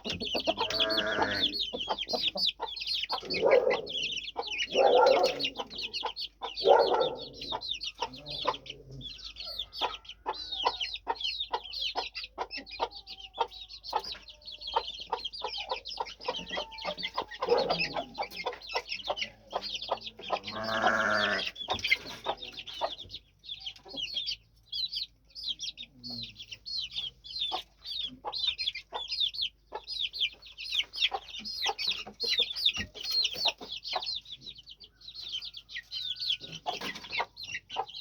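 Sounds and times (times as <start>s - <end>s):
longer lower chick call: 0.0s - 2.2s
chicks peeping: 0.0s - 38.0s.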